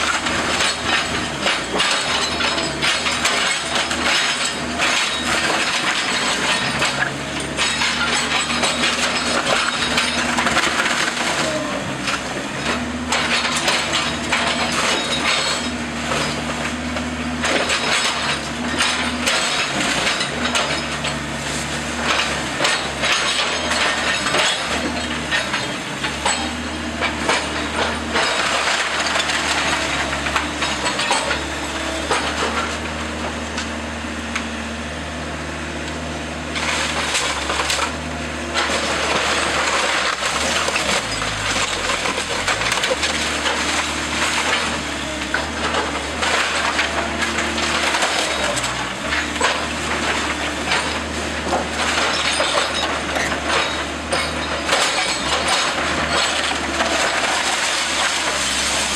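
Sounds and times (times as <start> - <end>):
wood cracking and splintering: 0.0 - 34.6, 35.8 - 58.9
heavy machine engine running: 0.0 - 58.9
glass breaking: 0.1 - 11.3, 12.6 - 16.4, 22.1 - 31.5, 45.4 - 58.9.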